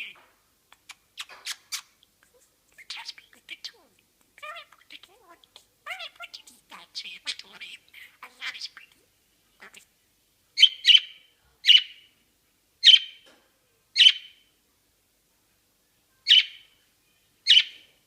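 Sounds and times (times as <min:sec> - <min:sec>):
budgerigar chirping: 0:10.6 - 0:12.0, 0:12.8 - 0:13.2, 0:14.0 - 0:14.4, 0:16.3 - 0:16.7, 0:17.5 - 0:17.9.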